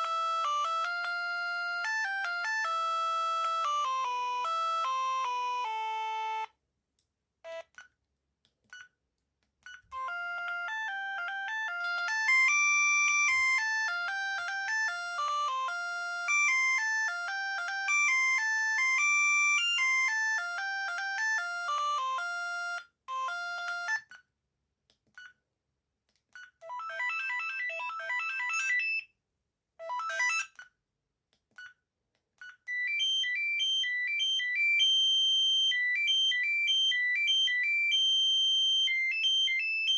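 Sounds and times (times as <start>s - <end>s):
mobile phone ringtone melodies: 0.0s - 6.5s, 10.0s - 24.1s, 26.6s - 29.1s, 29.8s - 30.6s, 32.7s - 39.9s.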